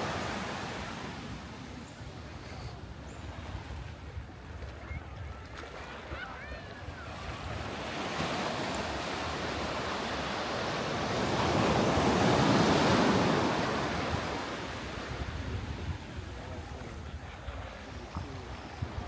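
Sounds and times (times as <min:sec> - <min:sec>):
waves breaking on a beach: 0:00.0 - 0:19.0
wind rumble on microphone: 0:02.9 - 0:07.8, 0:11.6 - 0:19.0.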